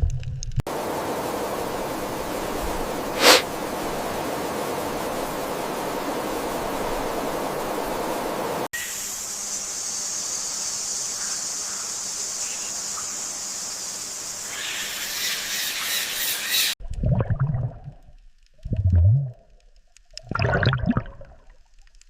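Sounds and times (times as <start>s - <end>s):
even rushing noise: 0.7s - 8.7s
steady high hiss: 0.7s - 16.2s.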